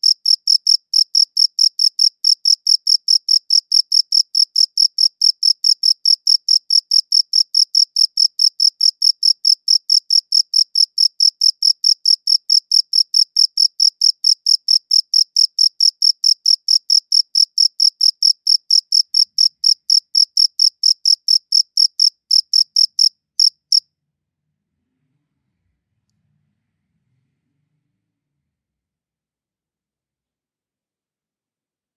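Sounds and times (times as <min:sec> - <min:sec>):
cricket chirping: 0:00.0 - 0:23.8.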